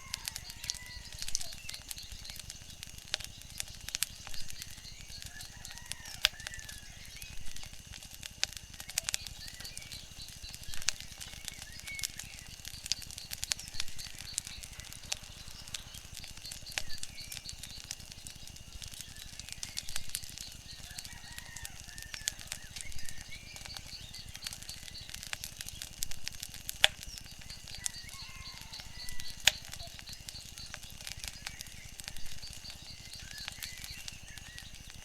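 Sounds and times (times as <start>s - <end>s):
wood fire crackling and popping: 0.0s - 35.0s
high chirps and whistles: 8.8s - 25.4s, 27.0s - 35.0s.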